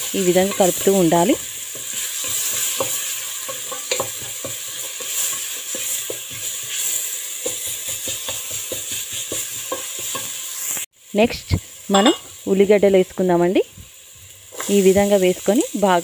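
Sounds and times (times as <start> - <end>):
paste sizzling in hot oil: 0.0 - 16.0
wooden spatula scraping a pot: 0.5 - 10.4.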